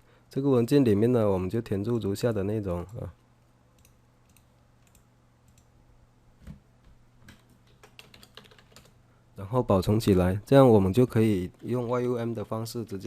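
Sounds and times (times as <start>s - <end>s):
keyboard typing clicks: 7.3s - 8.9s.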